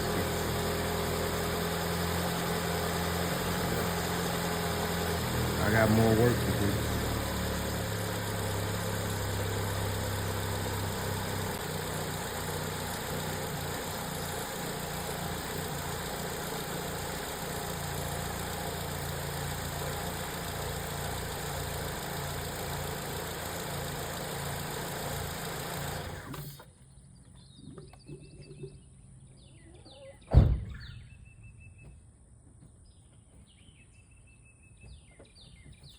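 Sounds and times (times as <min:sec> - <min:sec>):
car engine idling: 0:00.0 - 0:26.6
birds chirping: 0:02.9 - 0:26.0, 0:26.6 - 0:35.9.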